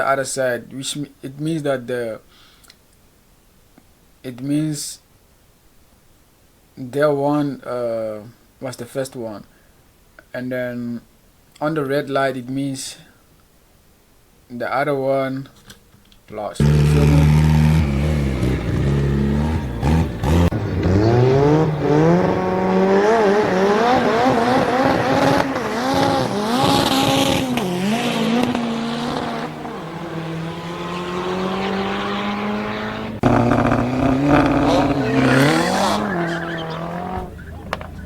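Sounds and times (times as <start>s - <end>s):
sports car engines revving: 16.6s - 38.0s
tire squeal: 16.6s - 38.0s.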